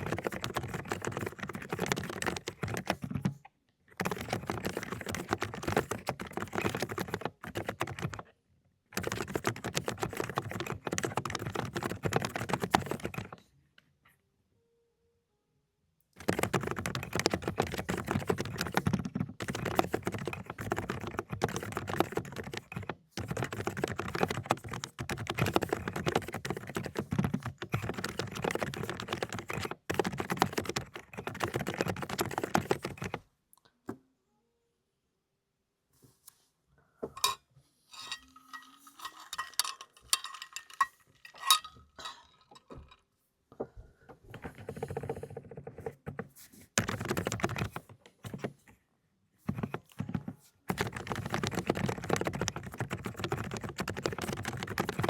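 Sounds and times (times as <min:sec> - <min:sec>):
fast typing on mechanical keyboard: 0:00.0 - 0:08.3, 0:08.9 - 0:13.4, 0:16.2 - 0:33.2, 0:44.5 - 0:48.5, 0:49.5 - 0:55.0.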